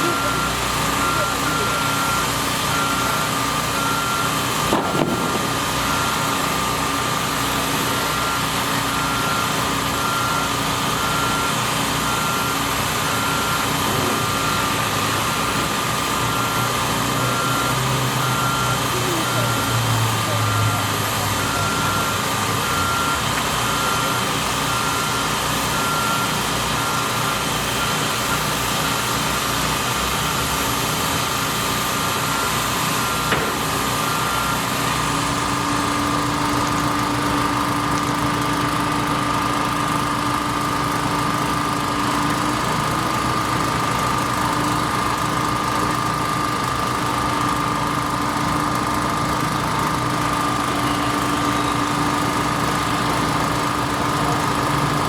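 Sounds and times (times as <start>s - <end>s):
machinery engine running: 0.0s - 55.0s
sharp knock: 4.7s - 5.6s.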